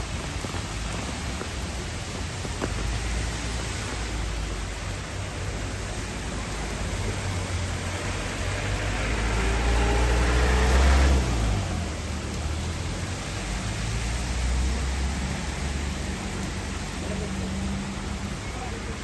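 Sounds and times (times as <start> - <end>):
car tyres hissing on wet road: 0.0 - 19.0
steady rain: 0.0 - 19.0.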